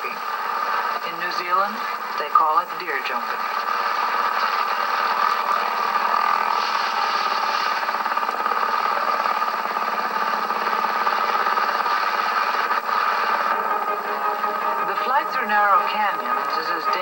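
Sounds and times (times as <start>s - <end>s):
helicopter engine and rotor: 0.0s - 17.0s.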